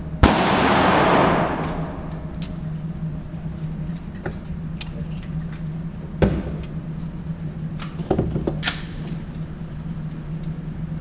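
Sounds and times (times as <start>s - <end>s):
low hum: 0.0s - 4.1s.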